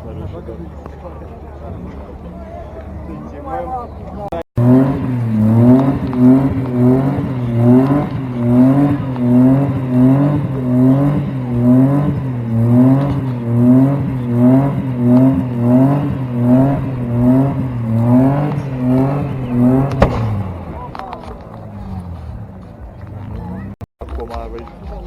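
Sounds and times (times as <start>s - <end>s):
car engine revving: 4.2s - 23.9s.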